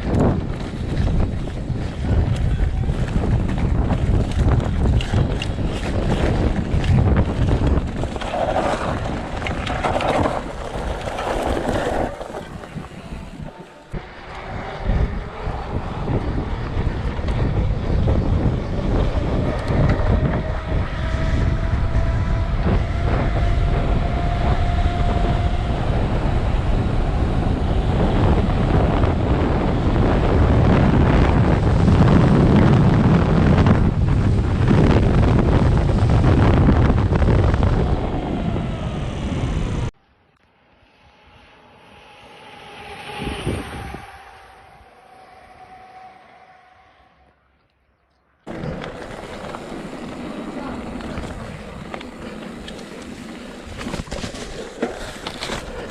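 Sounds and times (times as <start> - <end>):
wind rushing over microphone: 0.0 - 40.0, 40.7 - 47.3, 48.5 - 55.9
faint engine tone: 37.6 - 52.5.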